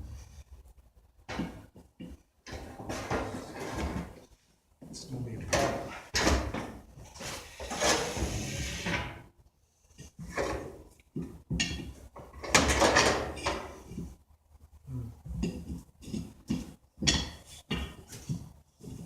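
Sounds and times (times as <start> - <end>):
scraping and rubbing of tire: 7.0 - 9.2.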